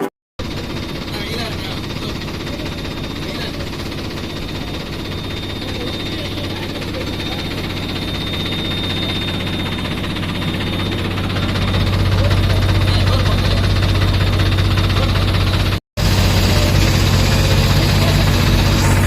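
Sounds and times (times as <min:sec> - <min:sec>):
diesel engine running: 0:00.0 - 0:19.0
faint high whine: 0:00.4 - 0:13.7.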